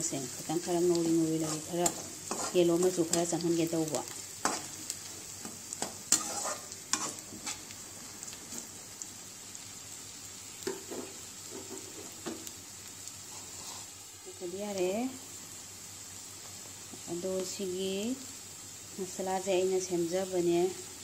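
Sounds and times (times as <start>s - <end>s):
oil sizzling in a wok: 0.0s - 21.0s
metal spoon scraping a pan: 1.4s - 3.4s, 4.4s - 4.8s, 5.4s - 7.7s, 13.3s - 14.0s.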